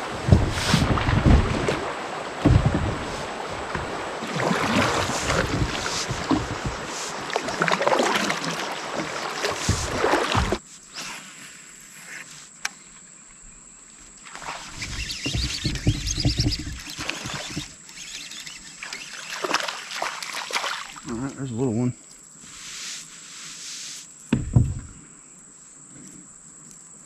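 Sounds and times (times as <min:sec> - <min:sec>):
wind buffeting microphone: 0:00.0 - 0:07.2.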